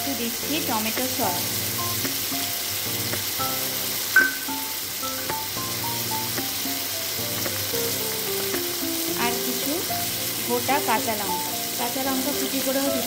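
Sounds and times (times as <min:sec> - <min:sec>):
background music of held notes: 0:00.0 - 0:13.0
potatoes sizzling in hot oil: 0:00.0 - 0:13.0
sharp knock: 0:04.2 - 0:04.6.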